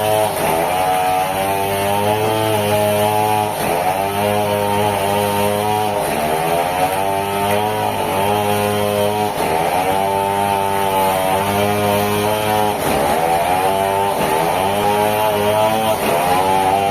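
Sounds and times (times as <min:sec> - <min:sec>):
sawmill machinery running: 0:00.0 - 0:16.9.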